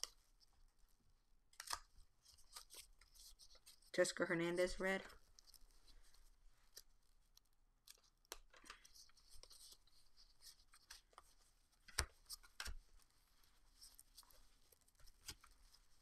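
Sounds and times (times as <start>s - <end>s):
trading cards clicking and rustling: 1.6s - 3.9s.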